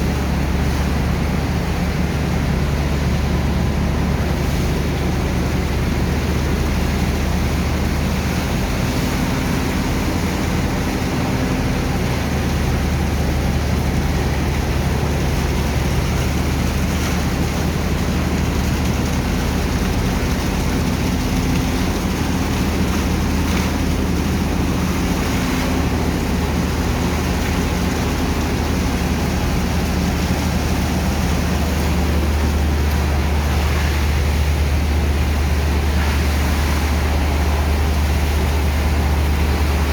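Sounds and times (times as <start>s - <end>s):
constant rushing noise: 0.0s - 39.9s
engine and pump droning: 0.0s - 39.9s.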